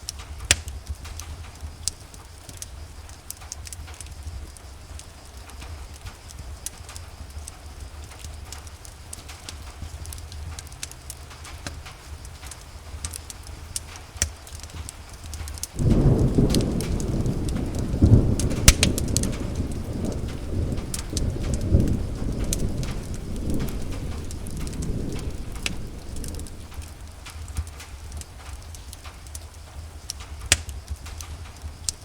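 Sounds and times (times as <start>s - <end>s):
rain drops ticking: 0.0s - 32.0s
low rumble: 15.8s - 27.3s
rolling thunder: 15.8s - 28.2s.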